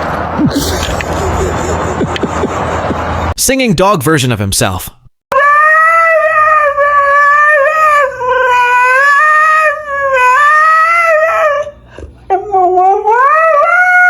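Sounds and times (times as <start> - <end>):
dog howling: 5.3 - 14.0.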